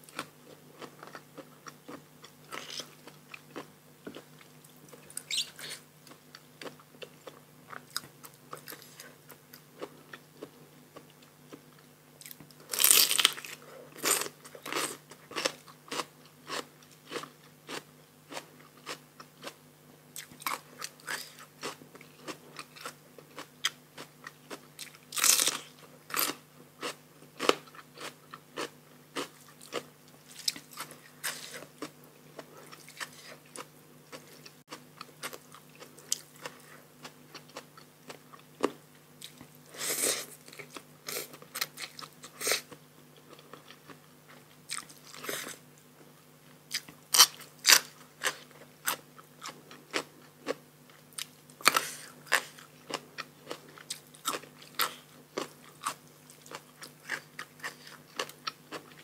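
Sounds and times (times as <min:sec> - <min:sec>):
person chewing: 0:00.0 - 0:19.6, 0:20.2 - 0:45.6, 0:46.7 - 0:59.0
crunchy bites: 0:12.2 - 0:19.6, 0:20.2 - 0:39.4, 0:46.7 - 0:50.6.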